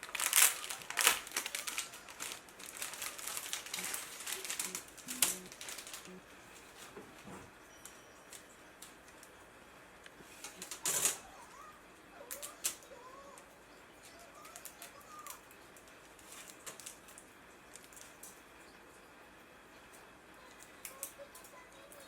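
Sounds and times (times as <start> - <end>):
faint squeaky chirps: 7.6 - 8.7.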